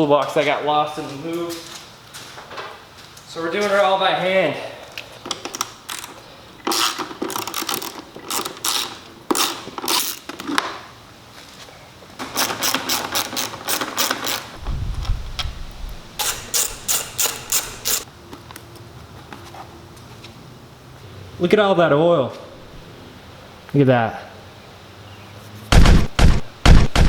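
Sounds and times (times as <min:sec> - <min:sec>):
dull thump: 0:14.6 - 0:16.2
socket ratchet clicking: 0:16.2 - 0:18.1.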